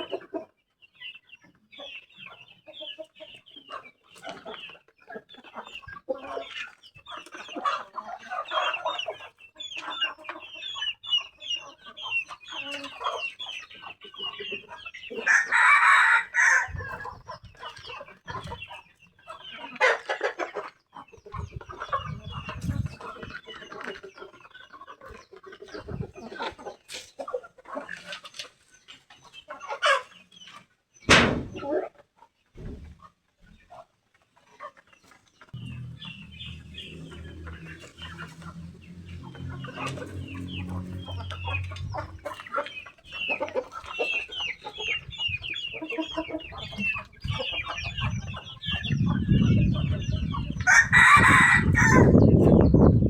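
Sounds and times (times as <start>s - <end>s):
chickens clucking and chirping: 0.0s - 53.0s
rooster crowing: 15.2s - 16.8s, 50.7s - 52.2s
low rumbling noise: 35.6s - 42.4s.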